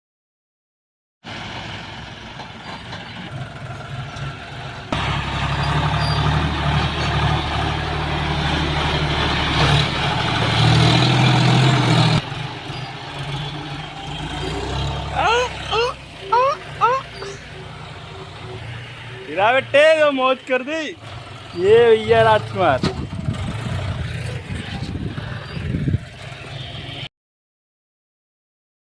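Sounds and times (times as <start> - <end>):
tractor engine running: 1.3 - 27.0.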